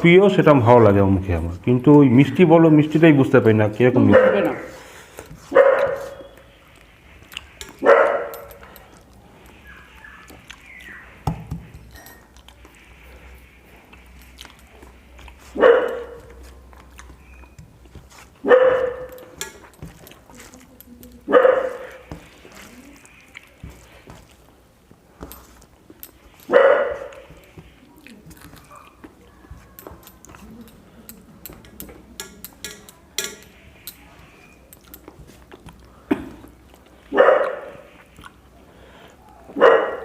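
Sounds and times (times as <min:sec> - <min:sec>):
dog barking: 0:04.0 - 0:04.7, 0:05.5 - 0:06.3, 0:07.8 - 0:08.6, 0:15.6 - 0:16.4, 0:18.4 - 0:19.3, 0:21.3 - 0:22.0, 0:26.5 - 0:27.2, 0:28.6 - 0:29.7, 0:37.1 - 0:37.9, 0:39.3 - 0:40.0.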